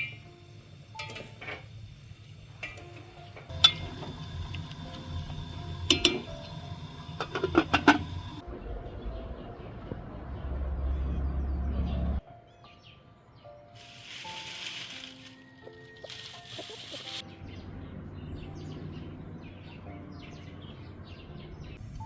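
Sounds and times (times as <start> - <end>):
dishes and utensils clinking: 1.0 - 1.7, 2.6 - 8.4.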